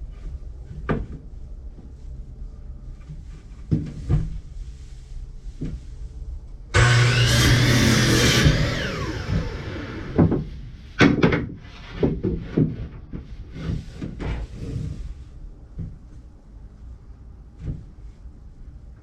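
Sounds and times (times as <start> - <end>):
power saw cutting wood: 6.8 - 10.2
saw winding down whine: 6.8 - 10.2.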